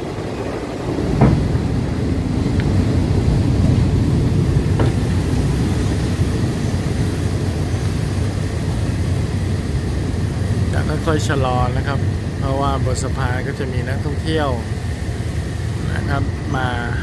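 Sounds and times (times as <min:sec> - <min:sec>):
train wheels rumbling on rails: 0:00.0 - 0:17.0
sharp knocks: 0:01.1 - 0:01.8, 0:04.7 - 0:05.1.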